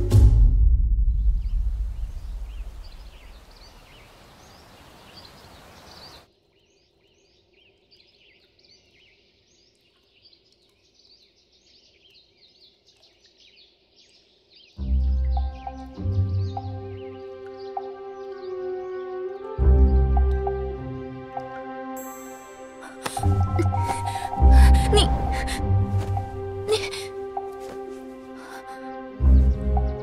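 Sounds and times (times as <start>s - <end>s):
birds chirping: 1.2s - 30.0s.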